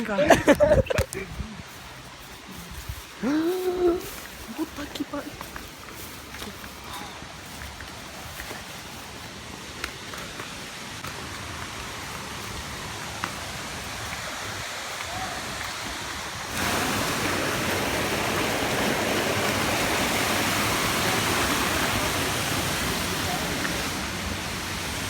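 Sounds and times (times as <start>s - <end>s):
waterfall rushing: 6.6s - 25.0s.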